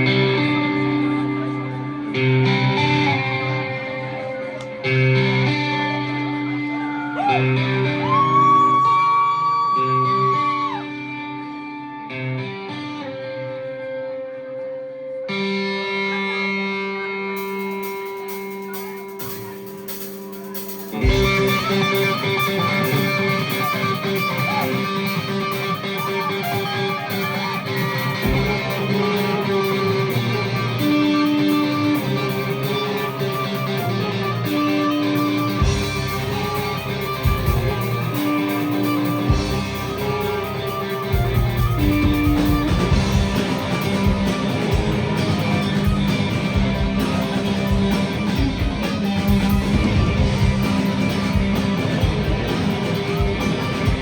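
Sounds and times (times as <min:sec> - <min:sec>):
electric guitars playing: 0:00.0 - 0:54.0
bass and drums: 0:17.4 - 0:54.0.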